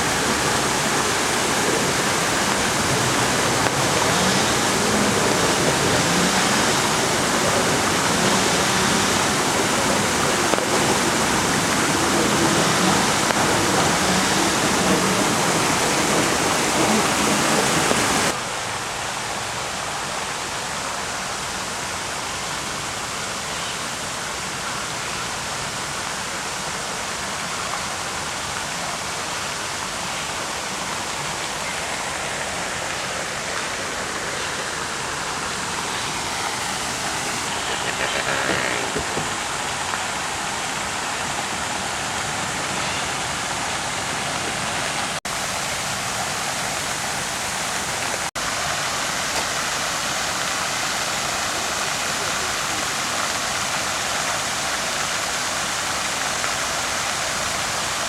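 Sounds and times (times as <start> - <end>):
faint voices: 0.0 - 18.4, 32.5 - 41.5
rushing water: 0.0 - 58.0.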